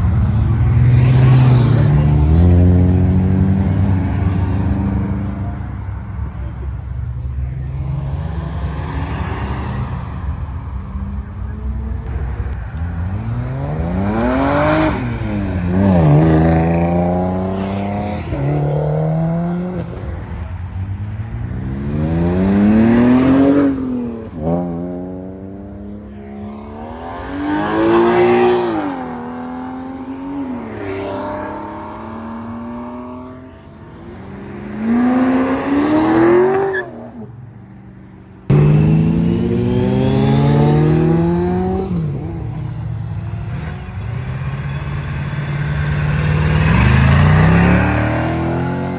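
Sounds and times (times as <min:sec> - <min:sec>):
motorcycle engine revving: 0:13.1 - 0:20.2, 0:38.5 - 0:48.9.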